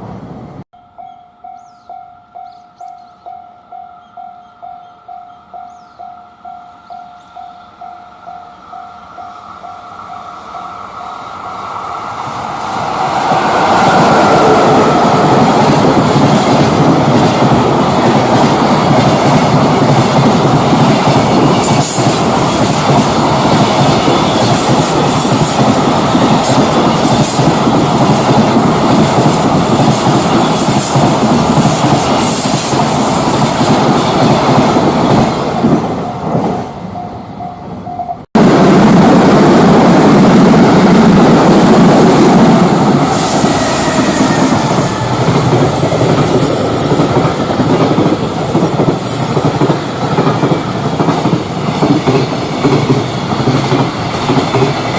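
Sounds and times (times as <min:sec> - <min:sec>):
freight train wheels clattering: 0:39.4 - 0:54.9.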